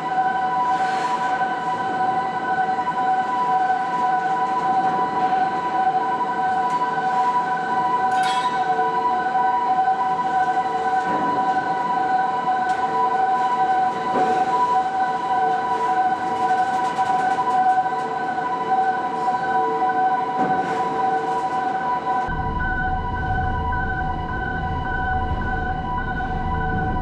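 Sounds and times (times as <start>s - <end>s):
machinery whine: 0.0s - 27.0s
noisy hum: 22.3s - 27.0s.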